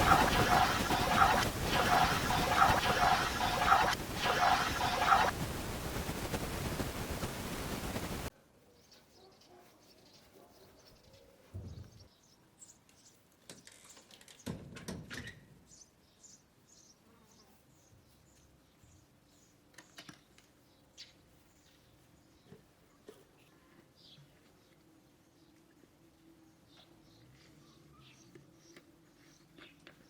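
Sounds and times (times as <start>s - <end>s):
faint birds chirping: 15.6s - 30.0s.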